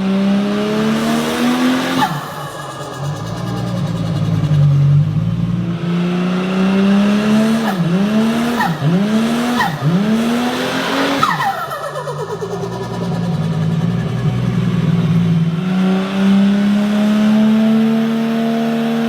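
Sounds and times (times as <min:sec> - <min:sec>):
turbocharged car engine revving: 0:00.0 - 0:19.0
turbo whistle: 0:07.6 - 0:15.3.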